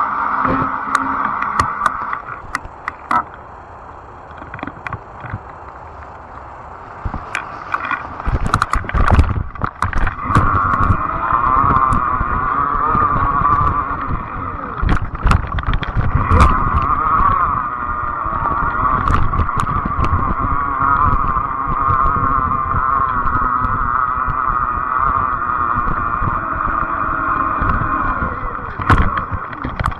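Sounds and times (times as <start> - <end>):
electric bike whine: 0.0 - 29.9
wind rumble on microphone: 0.0 - 29.9
bike knocks and rattles: 8.2 - 11.0, 14.8 - 16.8.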